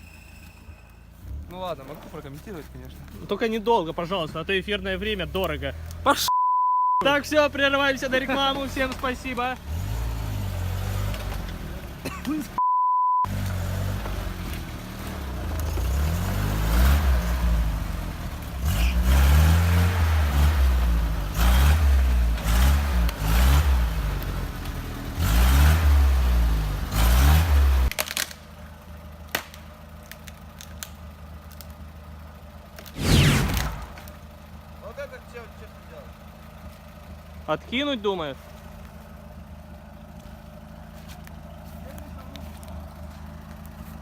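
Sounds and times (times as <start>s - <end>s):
short beep tone: 6.3s - 7.0s, 12.6s - 13.3s
engine revving: 7.3s - 12.0s, 13.3s - 27.9s, 32.8s - 34.2s.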